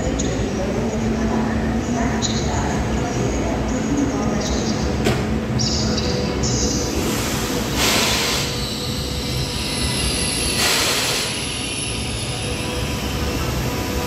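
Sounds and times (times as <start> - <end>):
electric train low rumble: 0.0 - 14.0.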